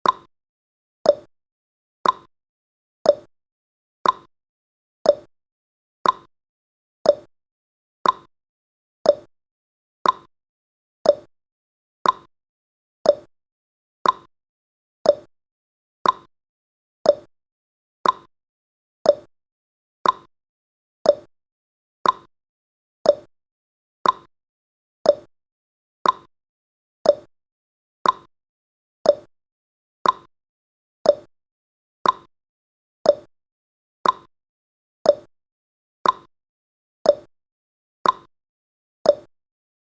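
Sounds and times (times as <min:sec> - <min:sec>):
clock ticking: 0:02.0 - 0:02.3, 0:06.0 - 0:06.3, 0:08.0 - 0:08.3, 0:10.0 - 0:10.3, 0:12.0 - 0:12.3, 0:14.0 - 0:14.3, 0:15.1 - 0:15.3, 0:16.0 - 0:16.3, 0:18.0 - 0:18.3, 0:20.0 - 0:20.3, 0:21.1 - 0:21.3, 0:22.0 - 0:22.3, 0:24.0 - 0:24.3, 0:25.1 - 0:25.3, 0:26.0 - 0:26.3, 0:27.1 - 0:27.3, 0:28.0 - 0:28.3, 0:29.1 - 0:29.3, 0:30.0 - 0:30.3, 0:31.1 - 0:31.3, 0:32.0 - 0:32.3, 0:34.0 - 0:34.3, 0:36.0 - 0:36.3, 0:38.0 - 0:38.3.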